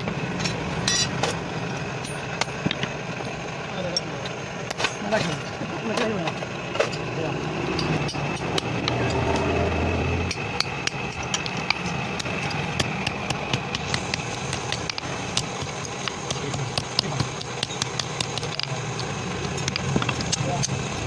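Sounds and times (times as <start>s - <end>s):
engine-like hum: 0.0s - 21.0s
low drone: 5.4s - 16.6s.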